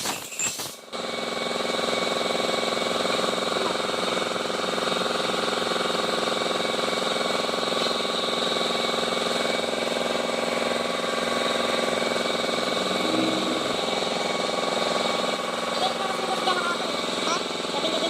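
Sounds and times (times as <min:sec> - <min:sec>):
car engine drone: 0:07.5 - 0:18.0
steady higher tones: 0:12.6 - 0:15.0.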